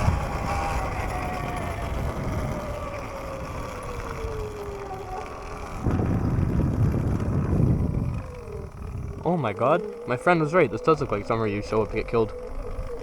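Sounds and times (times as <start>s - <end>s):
tyre and wind noise: 0.0s - 9.4s
electric motor whine: 0.0s - 13.0s
low rumble: 5.5s - 9.3s.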